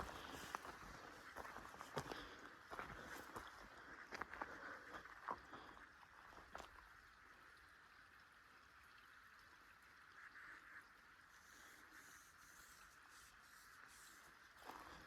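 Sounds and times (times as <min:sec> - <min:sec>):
footsteps on a trail: 0:00.0 - 0:06.7, 0:14.6 - 0:15.0
faint steady hiss: 0:10.2 - 0:15.0.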